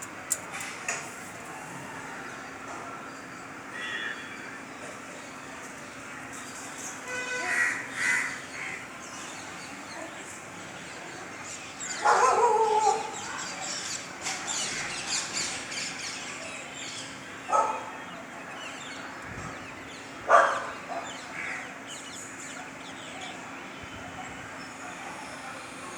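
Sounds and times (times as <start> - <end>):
loud bird calls: 1.5 - 25.8
small birds chirping: 8.1 - 25.6.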